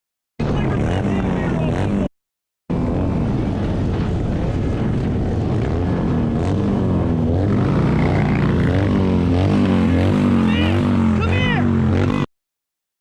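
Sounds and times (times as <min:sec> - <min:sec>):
motorcycle engine running: 0:00.4 - 0:02.1, 0:02.7 - 0:12.3
wind noise: 0:02.7 - 0:11.2.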